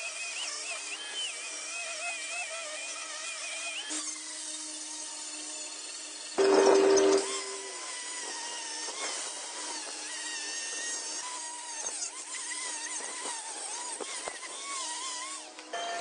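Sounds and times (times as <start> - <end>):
rotary power tool whining: 0.0 - 16.0.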